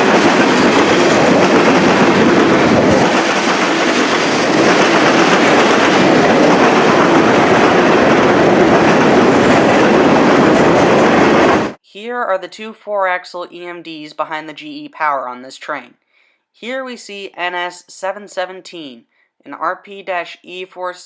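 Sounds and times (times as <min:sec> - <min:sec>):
freight train wheels on rails: 0:00.0 - 0:11.8.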